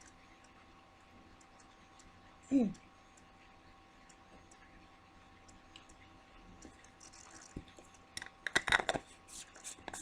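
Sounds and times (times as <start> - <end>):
faint steady hum: 0.0 - 10.0
faint small clicks: 5.4 - 7.0.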